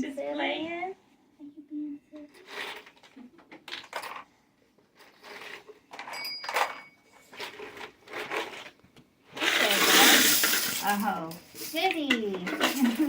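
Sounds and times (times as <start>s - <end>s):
plastic toy pieces clattering: 2.4s - 4.3s, 5.0s - 8.8s, 9.4s - 13.0s
rattle of pieces spilling: 9.4s - 13.0s.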